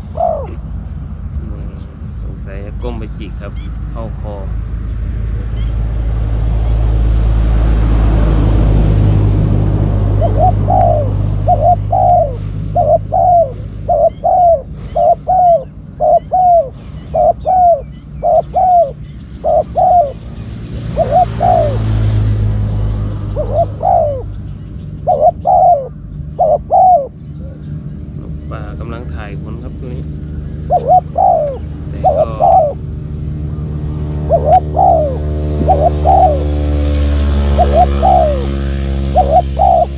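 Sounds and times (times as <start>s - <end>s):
dove cooing: 0.0s - 0.8s, 10.0s - 22.3s, 23.3s - 39.9s
low rumbling noise: 0.0s - 39.9s.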